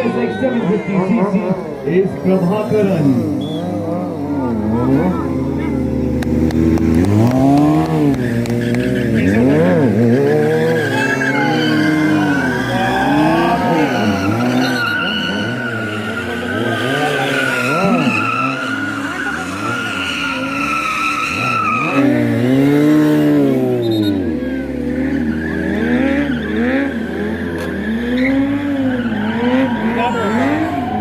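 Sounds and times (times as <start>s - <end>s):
motorcycles revving: 0.0s - 31.0s
tyre squeal: 3.2s - 4.0s, 8.1s - 22.6s, 23.4s - 31.0s.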